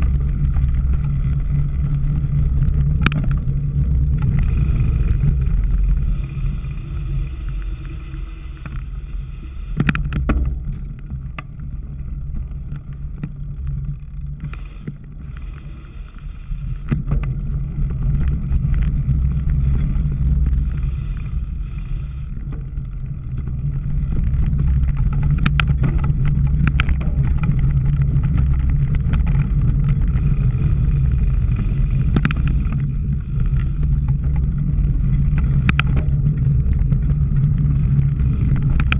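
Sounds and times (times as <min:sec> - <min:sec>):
bike rattling over rough ground: 0:00.0 - 0:38.9
wind rumble: 0:00.0 - 0:38.9
sharp clicks and knocks: 0:02.8 - 0:03.4, 0:09.8 - 0:11.5, 0:24.2 - 0:29.5, 0:32.0 - 0:32.8, 0:35.3 - 0:36.9.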